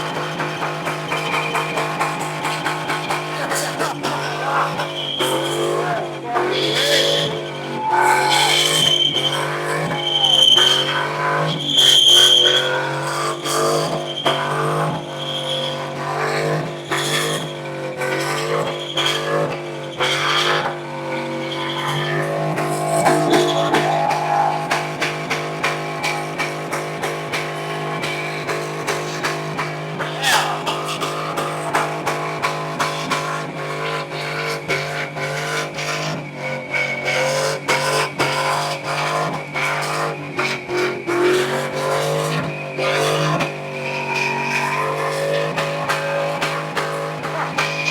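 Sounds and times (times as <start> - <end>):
tyres squealing on pavement: 0.0 - 28.4, 29.1 - 32.8, 41.9 - 46.3
car engine revving: 0.0 - 47.9.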